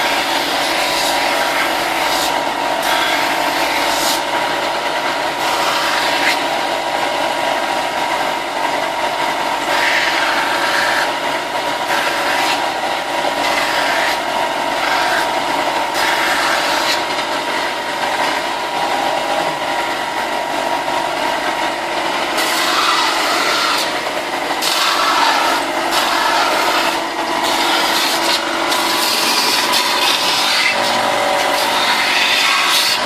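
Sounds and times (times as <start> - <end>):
electric sander running: 0.0 - 33.0
plastic rasping on sander: 11.8 - 18.4, 24.6 - 33.0.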